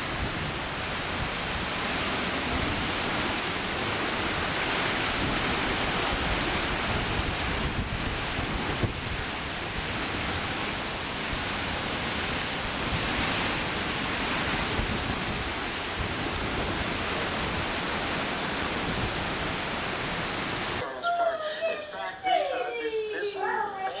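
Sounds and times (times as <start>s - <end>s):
wind and rain blowing hard: 0.0s - 20.8s
wind buffeting microphone: 0.0s - 20.8s.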